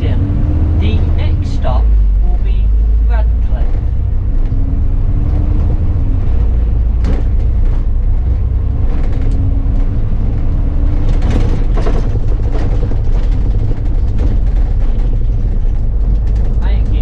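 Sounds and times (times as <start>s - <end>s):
bus engine rumbling: 0.0s - 17.0s
short rattles: 10.9s - 17.0s.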